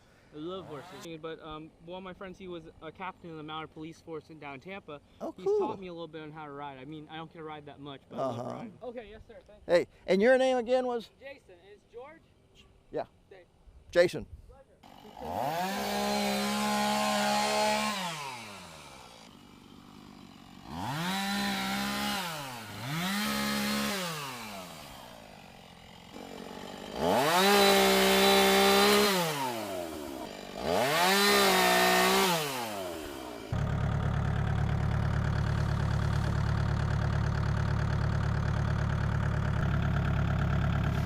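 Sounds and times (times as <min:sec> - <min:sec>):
chainsaw engine revving: 0:00.6 - 0:01.1, 0:14.8 - 0:41.0.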